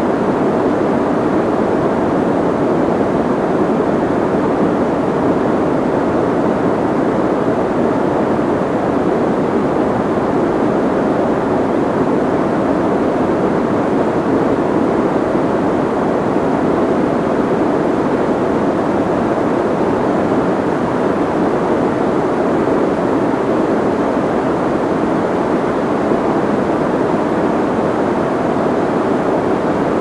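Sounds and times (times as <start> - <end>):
soft white noise: 0.0 - 30.0.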